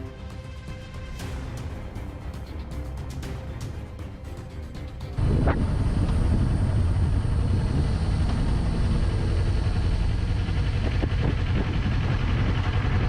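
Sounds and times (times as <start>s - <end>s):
tyres on the road: 4.8s - 13.0s
car engine rumble: 5.0s - 13.0s.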